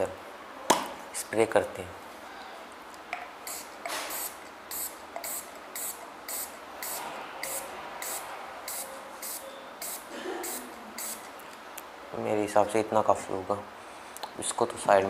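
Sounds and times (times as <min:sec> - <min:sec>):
aerosol can spraying: 0:03.4 - 0:11.3.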